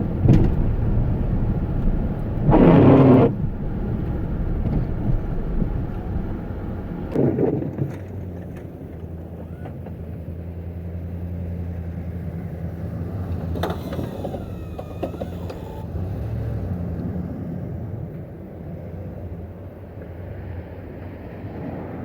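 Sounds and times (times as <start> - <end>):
low engine hum: 0.0 - 22.0
brief creak: 13.6 - 15.9.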